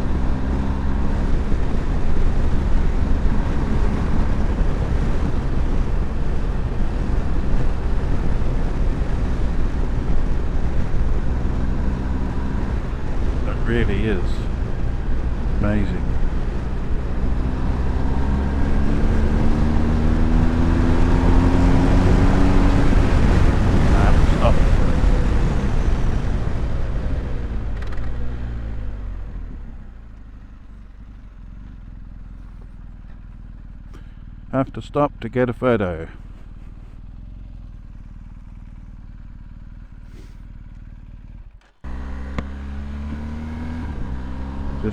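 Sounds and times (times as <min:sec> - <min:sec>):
motorcycle engine cruising: 0:00.0 - 0:44.9
wind rush: 0:20.5 - 0:26.6
motorcycle engine slowing to idle: 0:23.0 - 0:34.8, 0:36.1 - 0:43.6.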